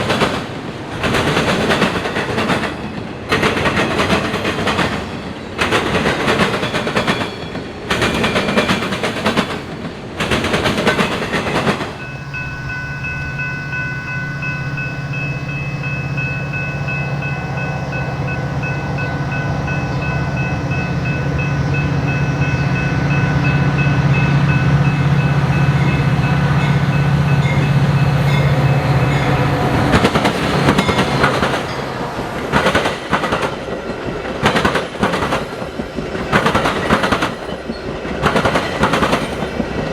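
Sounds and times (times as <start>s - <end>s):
train wheels clattering over rail joints: 0.0s - 12.6s, 32.5s - 39.9s
diesel locomotive engine drone: 9.8s - 39.9s.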